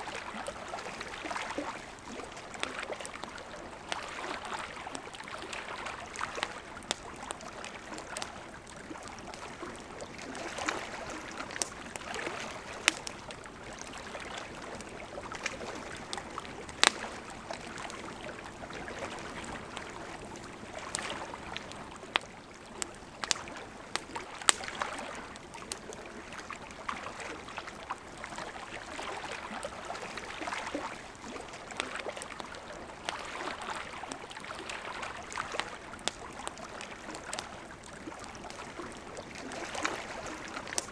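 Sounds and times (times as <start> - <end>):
burning wood popping and crackling: 6.0 - 26.4, 35.2 - 40.9.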